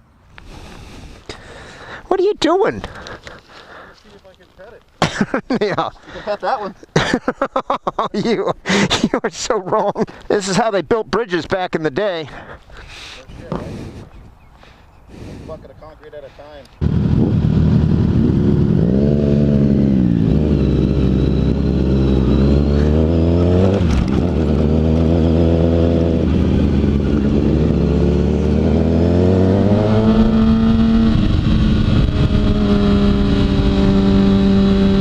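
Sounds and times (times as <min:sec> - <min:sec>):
motorcycle engine accelerating: 0:16.8 - 0:35.0.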